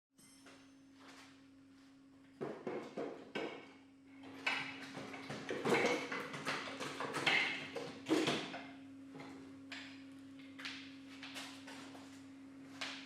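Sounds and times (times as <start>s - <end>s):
steady low hum: 7.5s - 13.0s.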